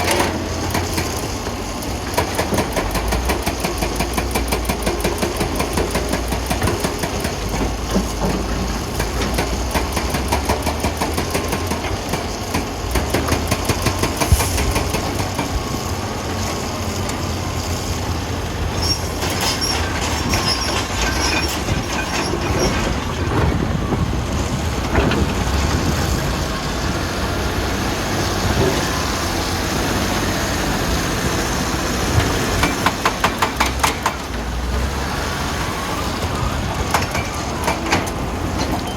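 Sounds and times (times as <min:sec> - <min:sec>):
wheel loader diesel engine: 0:00.0 - 0:38.9
clattering knocks and rattles: 0:19.2 - 0:26.4.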